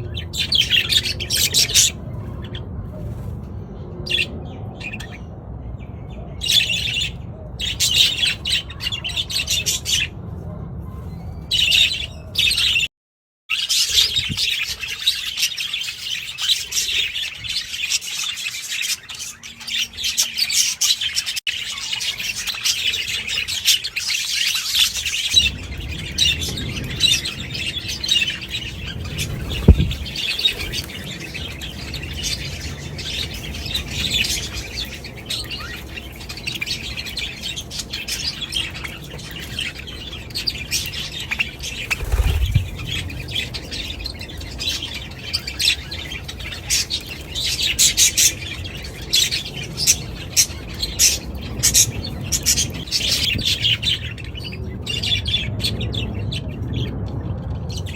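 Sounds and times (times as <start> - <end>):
budgerigars chattering and chirping: 0.0 - 2.7, 13.5 - 56.9.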